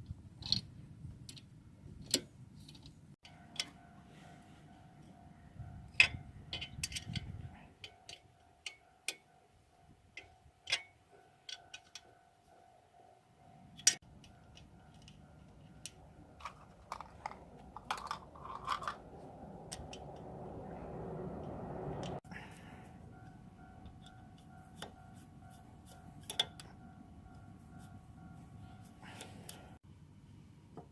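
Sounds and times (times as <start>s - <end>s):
metal parts clicking and tapping: 0.4s - 3.8s, 5.9s - 9.3s, 10.1s - 12.1s, 13.8s - 20.3s, 25.9s - 26.8s.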